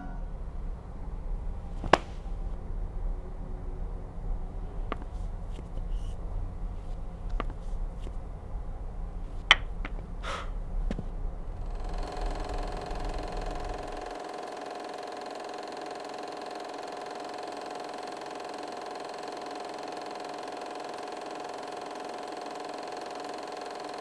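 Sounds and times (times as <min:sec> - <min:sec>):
low hum: 0:00.0 - 0:16.3
film projector whirring: 0:11.5 - 0:24.0.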